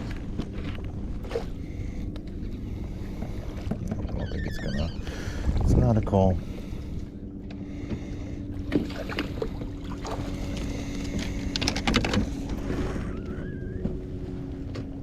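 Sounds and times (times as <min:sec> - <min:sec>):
steady low hum: 0:00.0 - 0:15.0
short wavering squeak: 0:04.1 - 0:05.4, 0:12.6 - 0:14.3.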